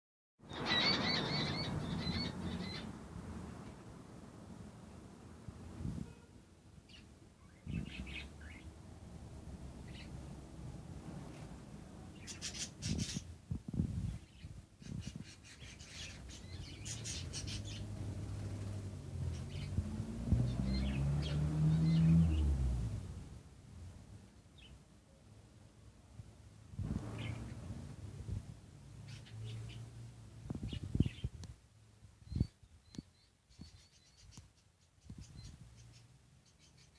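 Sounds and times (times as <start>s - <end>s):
budgerigars chirping: 0.5s - 2.9s, 14.9s - 17.9s.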